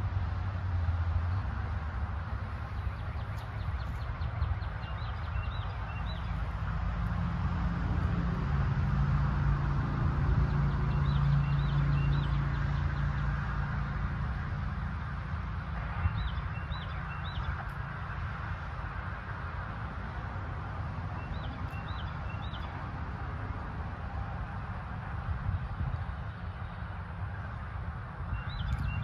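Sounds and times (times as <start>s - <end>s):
small birds chirping: 2.4s - 6.6s, 21.2s - 22.8s, 28.3s - 29.0s.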